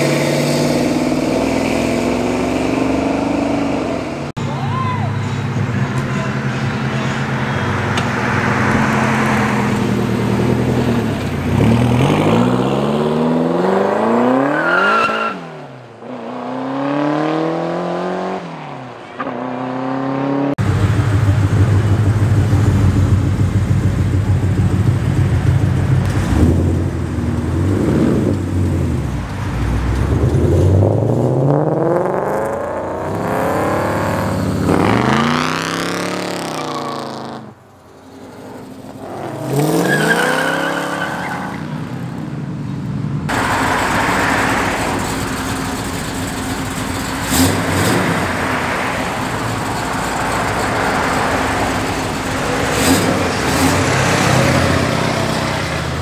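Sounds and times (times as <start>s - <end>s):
car engine revving: 0.0s - 4.3s, 19.2s - 42.0s, 43.3s - 56.0s
engine low rumble and revving: 0.0s - 4.4s, 5.2s - 14.6s, 19.3s - 40.6s, 41.8s - 56.0s.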